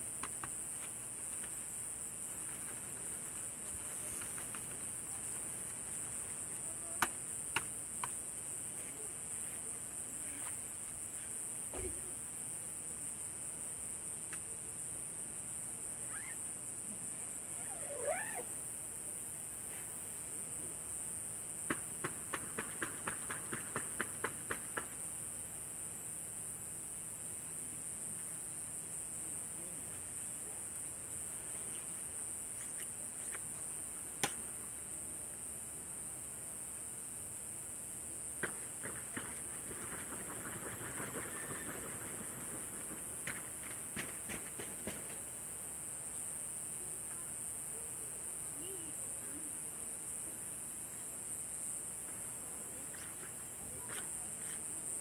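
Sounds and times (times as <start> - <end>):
night insects chorus: 0.0 - 55.0
sharp pop from fire: 34.2 - 34.4.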